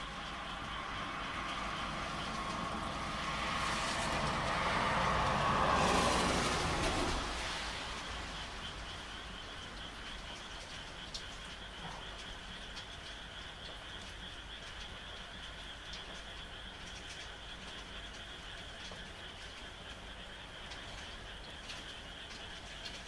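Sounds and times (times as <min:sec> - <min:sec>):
frogs calling: 0:00.0 - 0:23.0
rain hiss: 0:00.0 - 0:23.0
loud rushing noise: 0:02.5 - 0:08.6.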